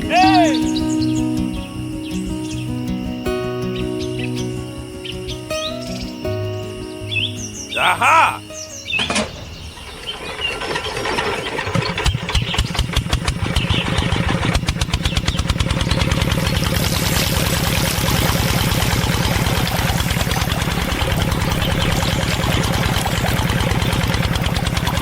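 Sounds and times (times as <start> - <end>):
small engine starting and idling: 8.6 - 25.0.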